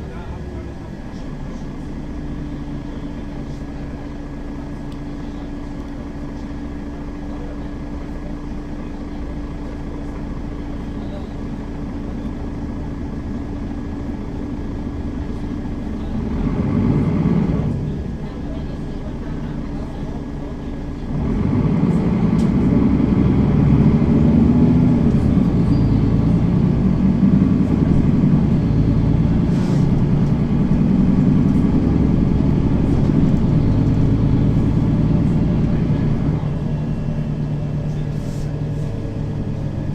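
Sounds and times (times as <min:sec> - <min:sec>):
bus engine drone: 0:00.0 - 0:39.9
loud low rumble: 0:16.0 - 0:39.9.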